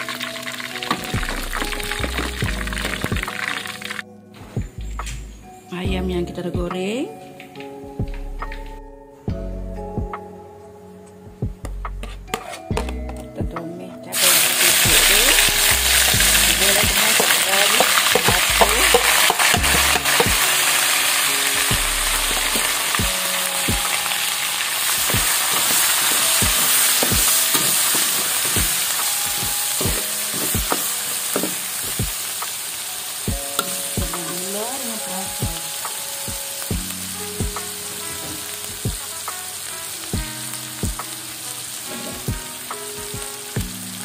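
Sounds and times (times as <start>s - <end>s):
food sizzling in hot oil: 0.0s - 4.0s, 14.1s - 44.0s
metal spatula scraping a wok: 12.0s - 12.7s, 14.2s - 31.9s, 37.8s - 40.0s, 41.8s - 42.7s.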